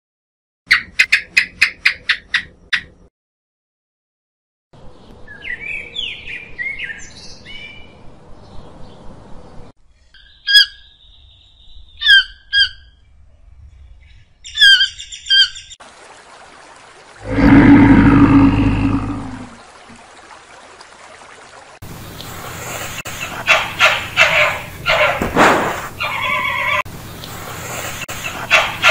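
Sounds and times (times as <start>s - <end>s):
small birds chirping: 4.9s - 15.8s
toucan calls: 10.2s - 11.0s, 11.9s - 13.0s, 14.4s - 15.7s, 23.1s - 25.3s, 25.9s - 26.8s, 28.1s - 28.9s
stream rushing: 15.8s - 23.0s
steady hiss: 21.9s - 23.4s, 26.9s - 28.4s.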